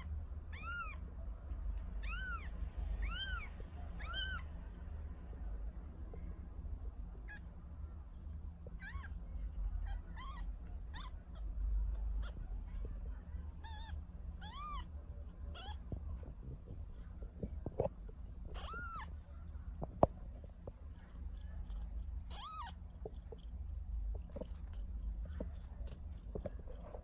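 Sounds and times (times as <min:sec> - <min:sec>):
low steady hum: 0:00.0 - 0:27.0
kitten mewing: 0:00.5 - 0:01.0, 0:02.0 - 0:04.4, 0:09.8 - 0:11.6, 0:13.6 - 0:14.9, 0:15.5 - 0:15.9, 0:18.5 - 0:19.1, 0:21.4 - 0:23.4.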